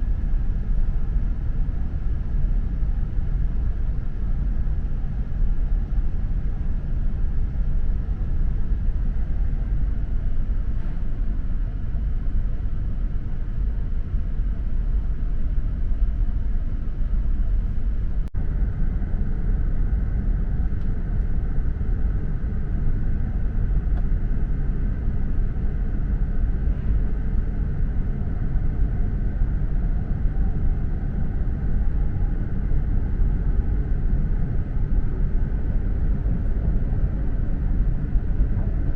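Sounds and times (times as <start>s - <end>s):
train cabin rumble: 8.0s - 38.9s.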